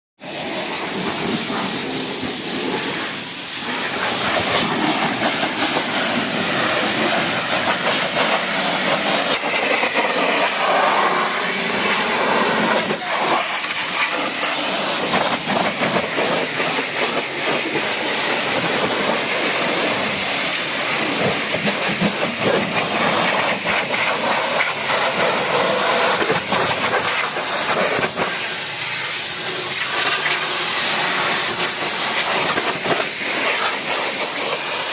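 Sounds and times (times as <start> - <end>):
pressure washer spraying water: 0.2 - 34.9.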